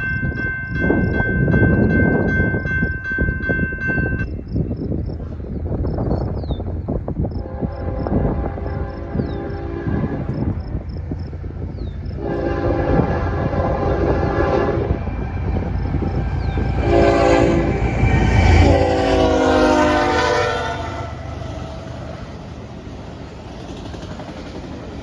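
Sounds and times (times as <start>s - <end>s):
train rumble: 0.0s - 25.0s
locomotive air horn blasts: 7.4s - 10.6s, 12.2s - 21.3s.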